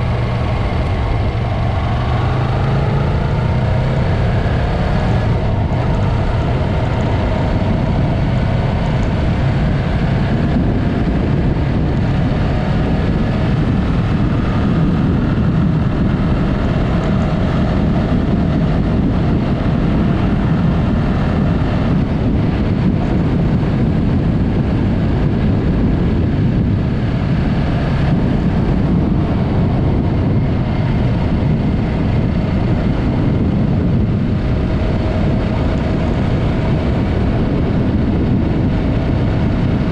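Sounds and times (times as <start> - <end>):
motorcycle engine cruising: 0.0 - 39.9
wind rush on microphone: 0.0 - 39.9.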